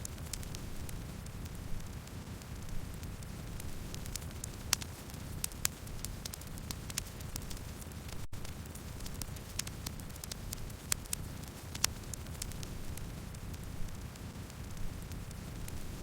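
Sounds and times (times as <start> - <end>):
burning wood crackling and popping: 0.0 - 16.0
low rumble of flames: 0.0 - 16.0.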